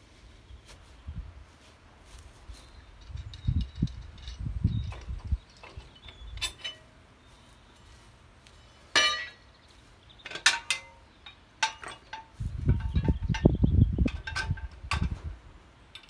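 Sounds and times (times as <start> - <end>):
metal clinks and clanks: 3.0 - 6.9, 8.9 - 9.4, 10.2 - 15.2.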